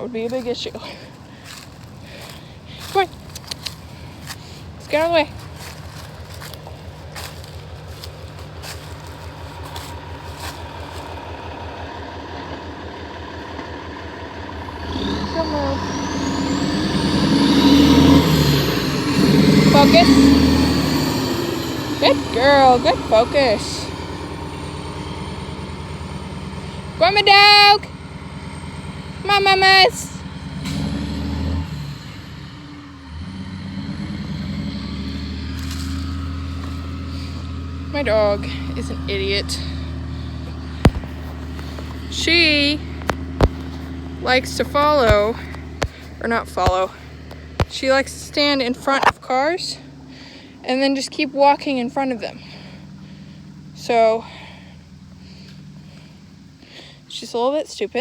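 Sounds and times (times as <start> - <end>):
vehicle engine rumbling: 0.0 - 58.0
steady whine: 14.6 - 30.2.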